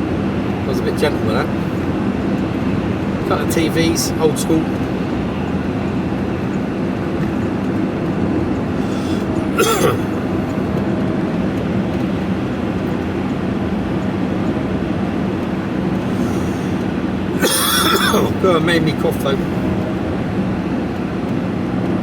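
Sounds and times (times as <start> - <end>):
vehicle engine hum and road noise: 0.0 - 22.0
person coughing: 8.9 - 10.2, 17.4 - 18.4.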